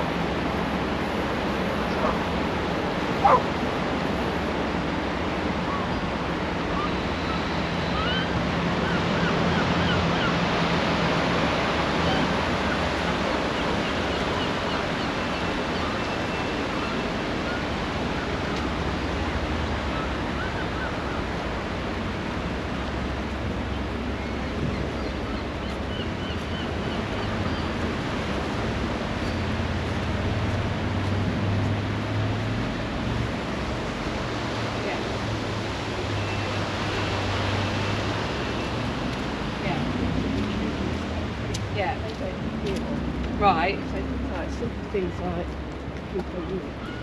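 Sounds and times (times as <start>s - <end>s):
sea surf washing onto beach: 0.0s - 25.9s, 26.7s - 46.8s.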